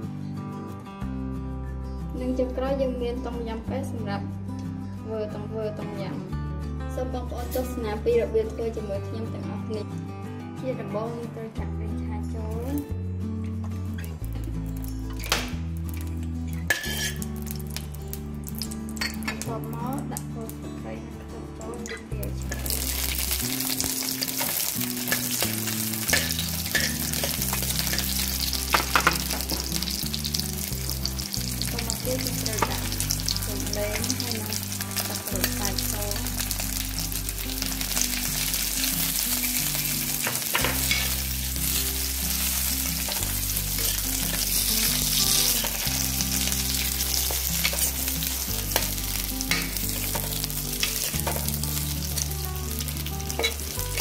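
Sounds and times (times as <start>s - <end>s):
herbs sizzling in hot oil: 14.0s - 20.3s, 22.2s - 54.0s.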